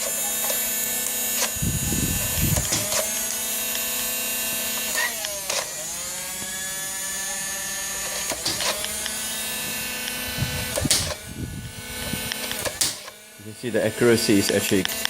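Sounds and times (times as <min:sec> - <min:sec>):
toy gun motor whining: 0:00.0 - 0:15.0
dart gun clicks: 0:02.5 - 0:03.9, 0:08.1 - 0:09.2, 0:10.0 - 0:11.2, 0:12.3 - 0:13.2.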